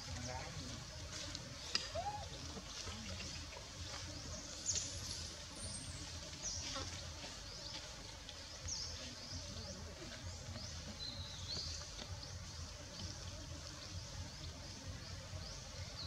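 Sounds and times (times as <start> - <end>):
birds chirping: 0.0 - 16.0
outdoor background hiss: 0.0 - 16.0.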